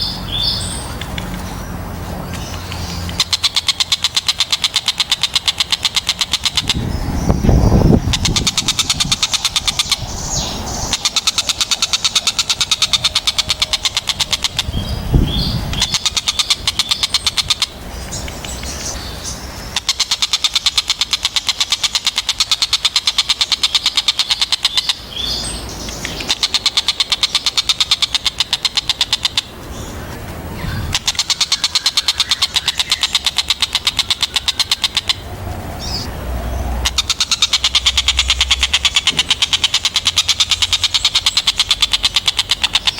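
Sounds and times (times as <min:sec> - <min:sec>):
kingfisher calling: 0:00.0 - 0:42.9.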